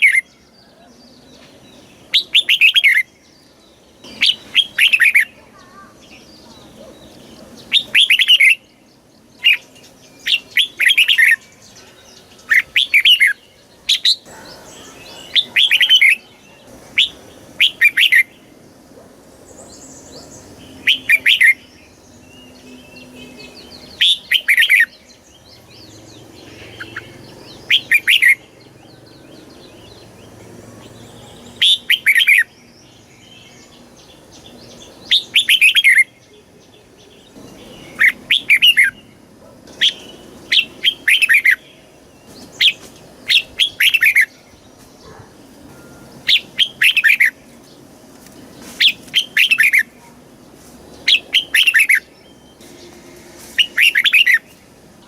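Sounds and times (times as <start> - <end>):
bird singing falling phrases: 0.0 - 55.0
faint bird chirping: 0.0 - 55.0.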